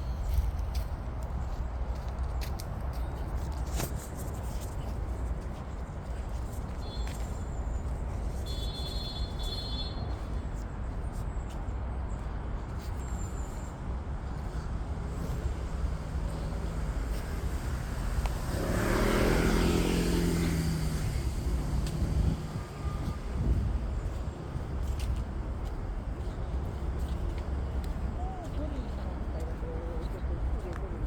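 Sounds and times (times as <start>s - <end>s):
steady outdoor rumble: 0.0s - 31.0s
motor vehicle passing: 14.6s - 31.0s.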